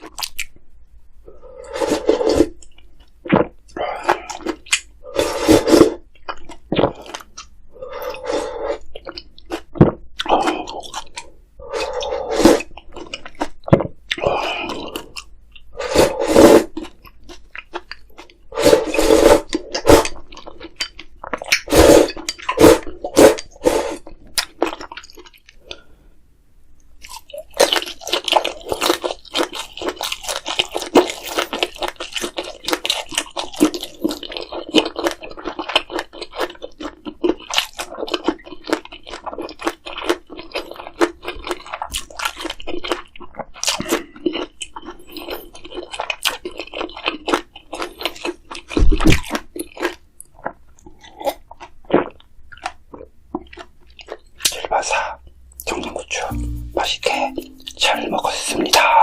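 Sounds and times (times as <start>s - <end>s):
crunchy chewing: 27.0s - 56.3s.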